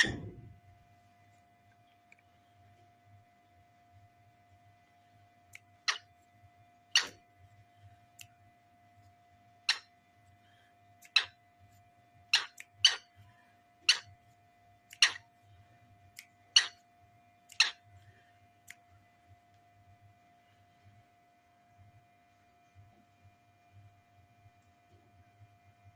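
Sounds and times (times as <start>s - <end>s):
faint steady hum: 0.0s - 25.9s
cockatiel clicking: 5.5s - 6.1s, 11.0s - 11.4s, 12.3s - 13.1s, 13.9s - 14.1s, 14.9s - 15.2s, 16.1s - 16.8s, 17.5s - 17.8s.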